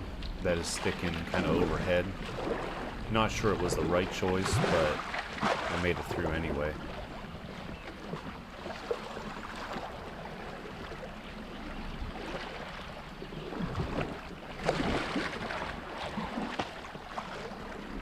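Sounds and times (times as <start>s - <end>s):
wind buffeting microphone: 0.0s - 10.9s
flowing river water: 0.0s - 18.0s
paddle splashes: 0.0s - 18.0s.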